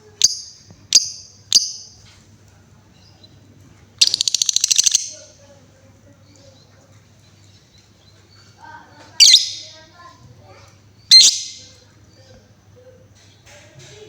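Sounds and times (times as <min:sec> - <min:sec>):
bird chirp: 0:00.2 - 0:02.0, 0:04.0 - 0:05.4, 0:06.2 - 0:10.1, 0:10.9 - 0:12.4
bird trill: 0:00.2 - 0:02.0, 0:04.0 - 0:05.3, 0:09.2 - 0:09.9, 0:11.0 - 0:11.8.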